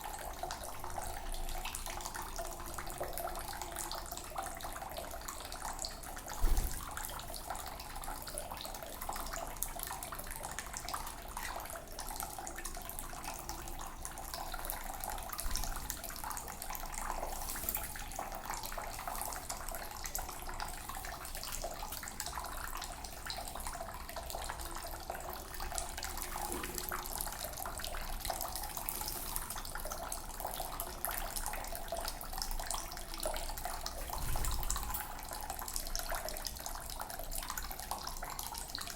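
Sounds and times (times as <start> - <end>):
water running from a tap: 0.0 - 38.9
short thump: 6.4 - 6.9.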